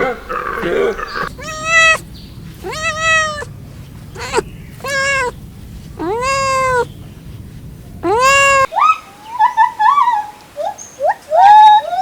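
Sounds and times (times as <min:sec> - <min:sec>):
cat meowing: 0:00.0 - 0:03.5, 0:04.1 - 0:05.4, 0:06.0 - 0:06.9, 0:08.0 - 0:08.7.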